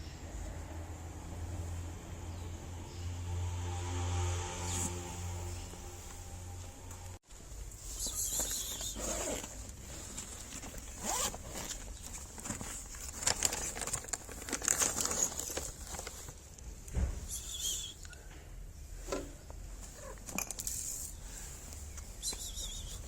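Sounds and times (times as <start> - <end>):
paper rustling and crinkling: 7.8 - 16.6.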